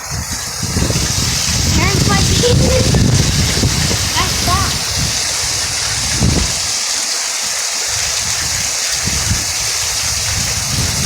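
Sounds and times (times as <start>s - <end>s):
wind rumble on microphone: 0.0s - 6.8s, 7.9s - 11.0s
heavy rain pouring: 0.0s - 11.0s.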